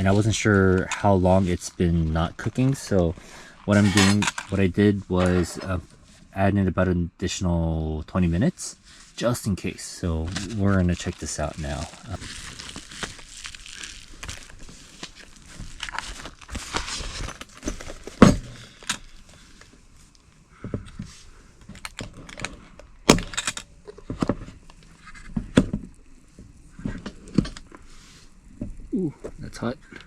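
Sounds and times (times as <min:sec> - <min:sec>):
packaging rustling: 0:10.3 - 0:20.4
plastic parts clicking and knocking: 0:20.6 - 0:24.5.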